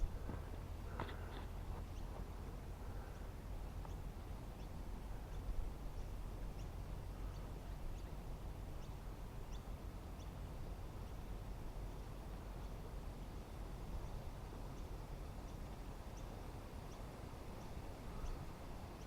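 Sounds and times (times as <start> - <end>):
low outdoor rumble: 0.0 - 19.0
faint high bird chirps: 16.9 - 19.0.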